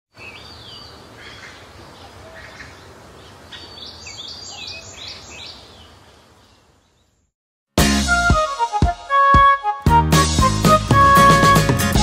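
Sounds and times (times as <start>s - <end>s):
birds calling: 0.1s - 7.3s.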